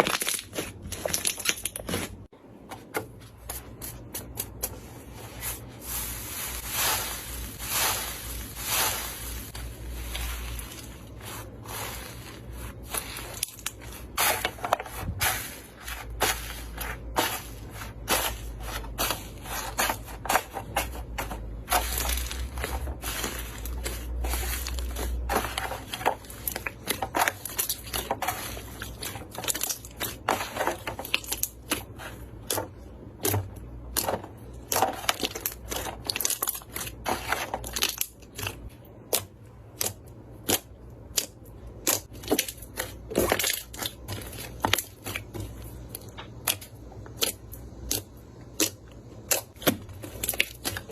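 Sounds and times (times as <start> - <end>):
slime crackling and popping: 46.2 - 50.9.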